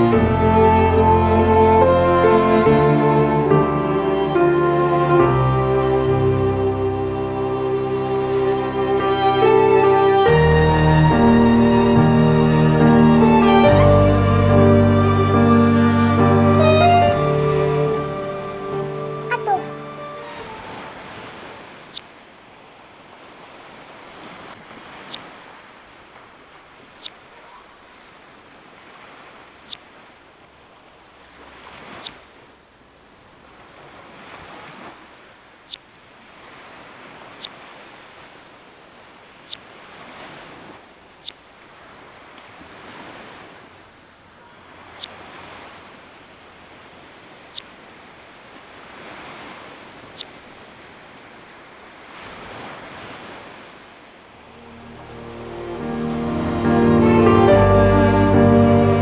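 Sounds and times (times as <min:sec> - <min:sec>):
ocean waves washing: 0:00.0 - 0:22.0, 0:48.4 - 0:59.0.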